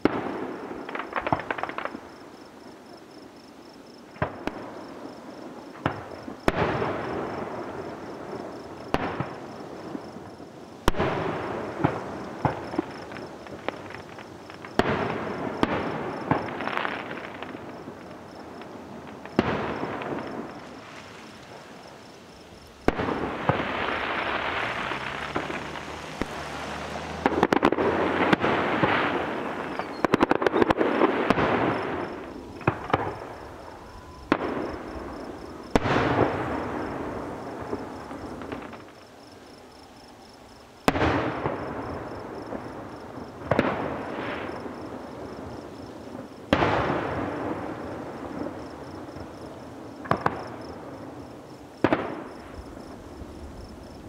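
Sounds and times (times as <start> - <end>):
rapid crackling pops: 0.8 - 2.1, 10.8 - 33.6
firework shells banging: 22.8 - 31.5.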